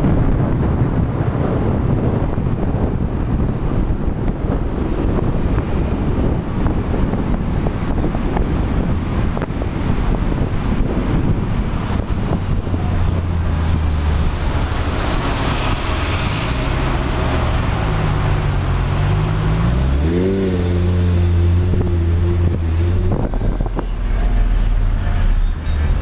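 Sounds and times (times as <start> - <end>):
wind on microphone: 0.0 - 26.0
sports car engine revving: 4.8 - 24.4.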